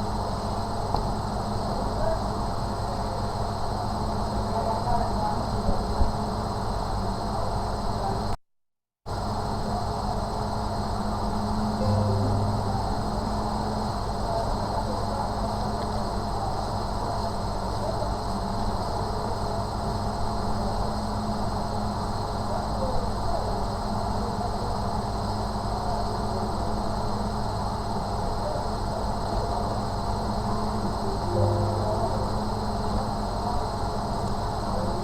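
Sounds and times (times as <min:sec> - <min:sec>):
steady background hum: 0:10.6 - 0:18.0, 0:28.4 - 0:35.0
faint high tone: 0:11.8 - 0:13.9, 0:31.3 - 0:33.6.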